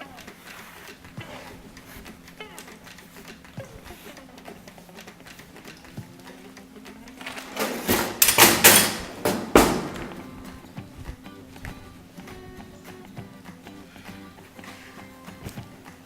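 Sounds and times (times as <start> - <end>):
knocks: 7.2 - 10.8.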